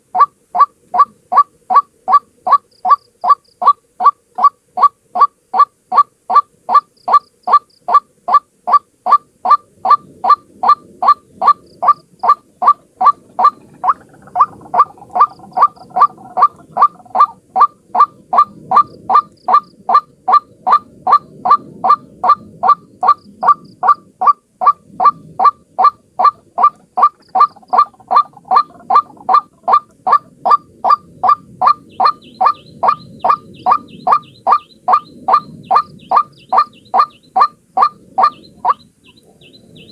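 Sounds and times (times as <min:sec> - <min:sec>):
waterhen calling: 0:00.0 - 0:39.9
low background rumble: 0:24.8 - 0:39.9.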